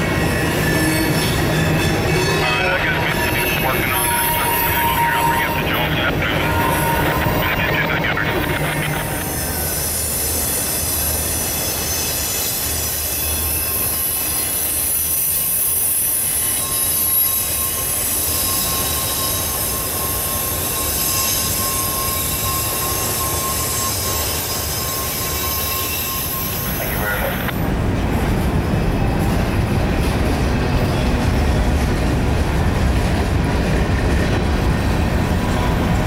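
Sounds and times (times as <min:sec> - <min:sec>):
steel wheels squealing: 0:00.0 - 0:27.7, 0:34.8 - 0:36.0
train running gear rumble: 0:00.0 - 0:36.0.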